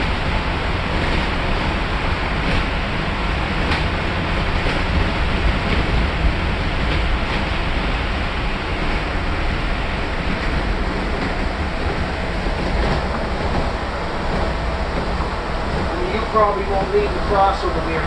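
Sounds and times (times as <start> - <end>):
bus engine rumble: 0.0 - 18.0
tire and wind noise: 0.0 - 18.0
bus body rattling: 10.0 - 18.0.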